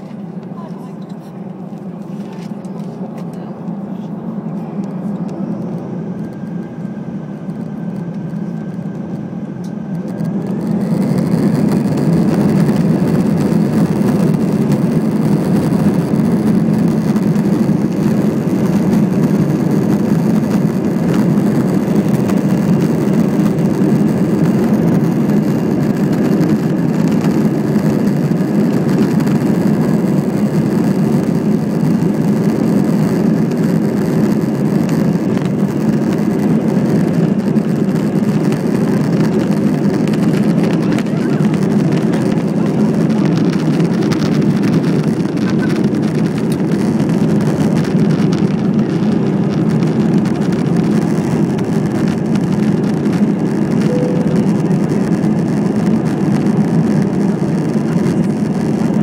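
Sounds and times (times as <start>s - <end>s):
jet engines spooling up: 0.0s - 59.0s.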